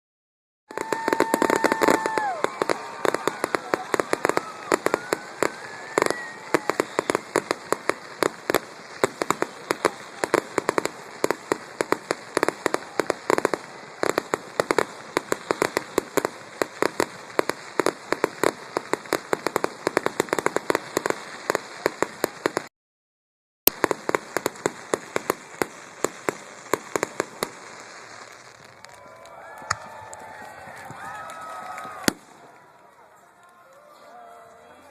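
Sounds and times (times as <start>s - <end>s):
rising firework whistle: 0.7s - 9.0s
fireworks popping and crackling: 0.7s - 22.7s, 23.7s - 33.0s.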